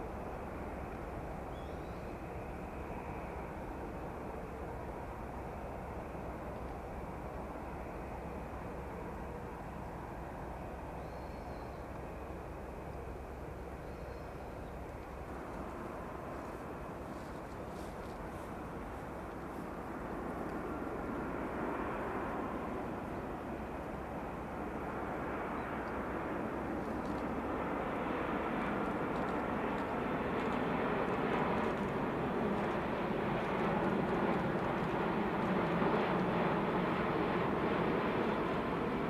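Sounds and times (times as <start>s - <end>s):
jet engine rumble: 0.0s - 39.0s.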